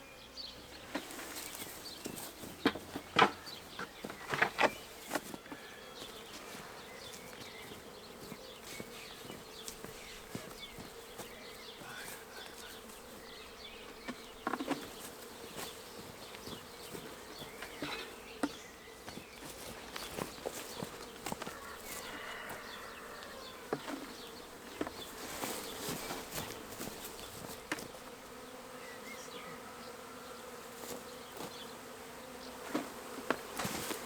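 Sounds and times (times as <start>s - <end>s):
bee swarm buzzing: 0.0s - 34.0s
bees zipping past: 20.1s - 34.0s.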